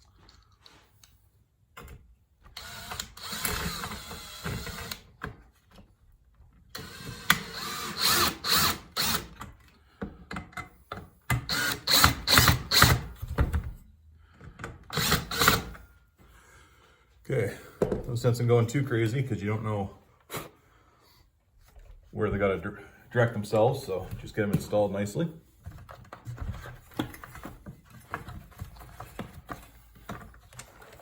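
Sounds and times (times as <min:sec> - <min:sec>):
power drill driving screws: 0:02.5 - 0:05.1, 0:06.7 - 0:09.4, 0:11.4 - 0:13.2, 0:14.9 - 0:15.8.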